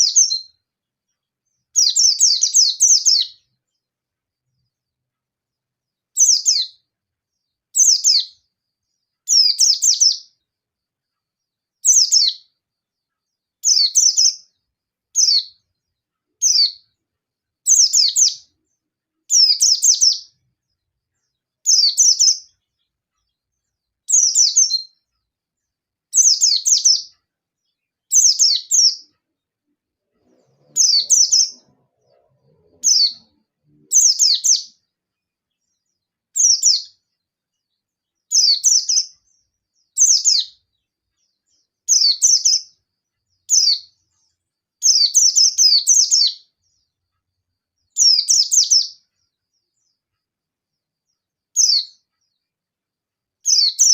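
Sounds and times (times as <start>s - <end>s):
bird twittering song: 0.0s - 53.9s.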